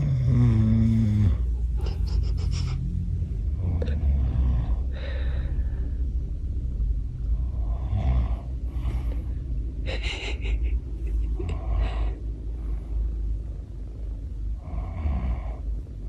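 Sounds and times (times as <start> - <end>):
low rumble: 0.0 - 16.0
breathy gasps: 4.8 - 6.0.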